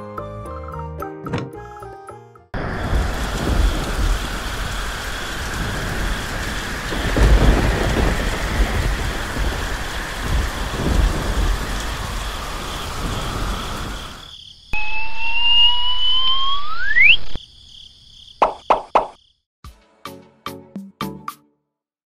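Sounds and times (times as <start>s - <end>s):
heavy rain: 2.6s - 14.9s
thunder rolling: 2.6s - 15.4s.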